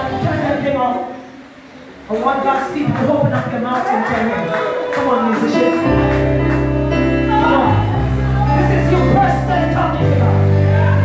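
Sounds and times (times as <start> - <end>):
low keyboard chords: 4.4 - 11.0
man singing or chanting: 7.3 - 11.0.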